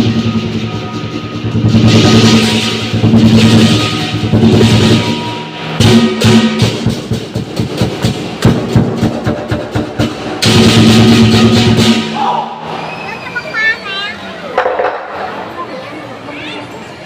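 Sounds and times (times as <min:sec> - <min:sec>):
large drum beating: 0:00.0 - 0:12.5
cymbals crashing: 0:00.0 - 0:13.4.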